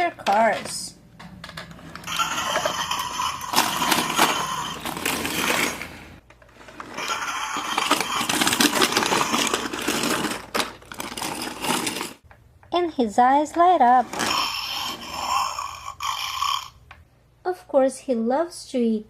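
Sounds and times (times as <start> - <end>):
toy truck mechanism clicking: 1.4 - 5.9, 6.8 - 12.2.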